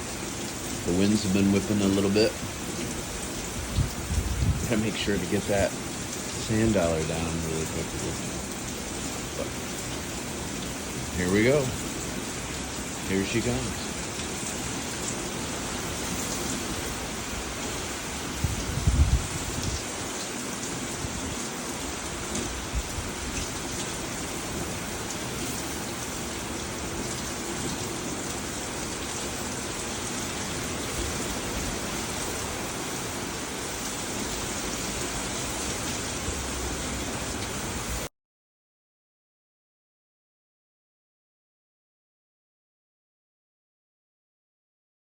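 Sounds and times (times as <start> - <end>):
heavy rain falling: 0.0 - 38.1
wind gust buffeting microphone: 0.9 - 9.5, 15.7 - 21.4, 22.1 - 24.9.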